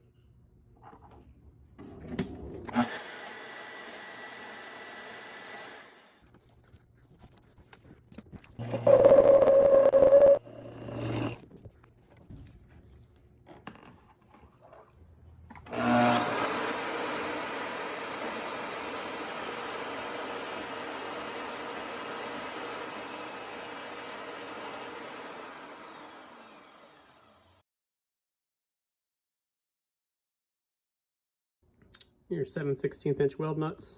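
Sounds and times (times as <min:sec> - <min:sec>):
power tool on steel: 0:02.7 - 0:06.2, 0:08.6 - 0:11.4, 0:15.7 - 0:27.6.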